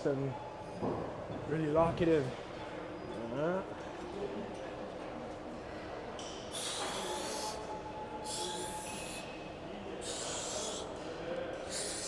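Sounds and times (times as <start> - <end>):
man's hissing exhalations: 6.5 - 7.6, 8.2 - 9.3, 10.0 - 11.0, 11.6 - 12.0.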